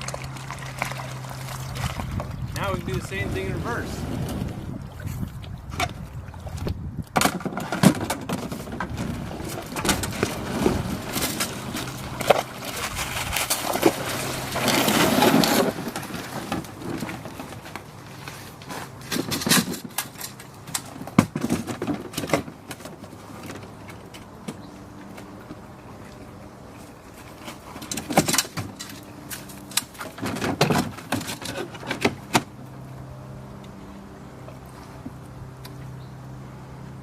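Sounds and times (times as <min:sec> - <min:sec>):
knocks and clicks of boat parts: 0:04.3 - 0:25.8, 0:27.2 - 0:32.8.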